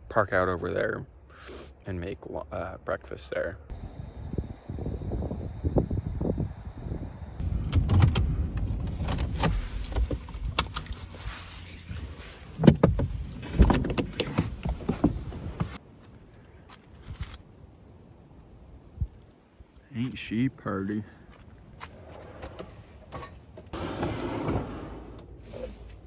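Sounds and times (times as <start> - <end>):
gear clunking and rustling: 7.4 - 15.8, 21.3 - 26.0.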